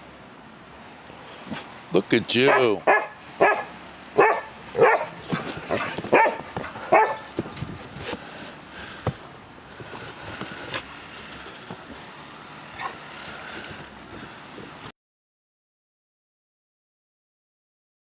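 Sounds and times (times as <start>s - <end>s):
dog yipping and whimpering: 2.5s - 8.7s.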